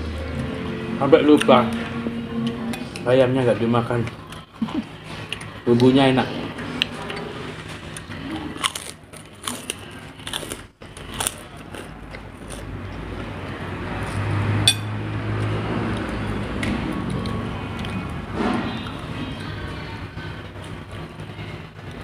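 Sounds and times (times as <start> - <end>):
crunchy chewing: 6.8 - 13.2.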